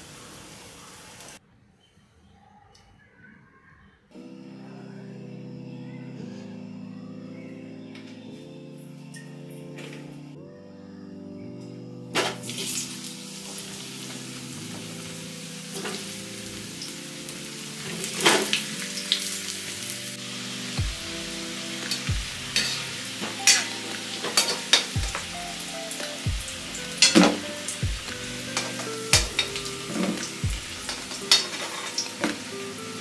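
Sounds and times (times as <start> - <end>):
potatoes sizzling in hot oil: 0.0 - 1.4, 12.4 - 33.0.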